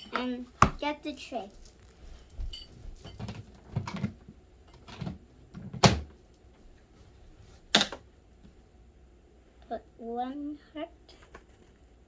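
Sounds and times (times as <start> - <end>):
plastic toys knocking and clattering: 0.0 - 6.2, 7.6 - 8.1.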